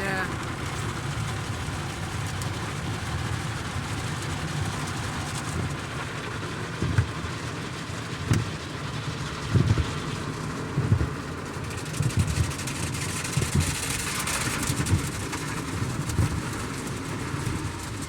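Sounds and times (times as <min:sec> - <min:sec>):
pressure water spraying on car: 0:00.4 - 0:18.0.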